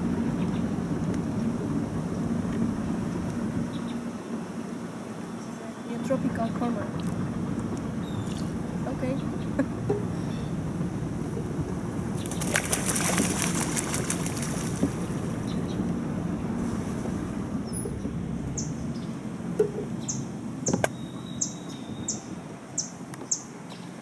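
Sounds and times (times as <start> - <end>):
steady low rumble: 6.0 - 20.7
small bird chirping: 8.0 - 8.5, 20.0 - 23.9
bird wing flaps: 12.1 - 15.5.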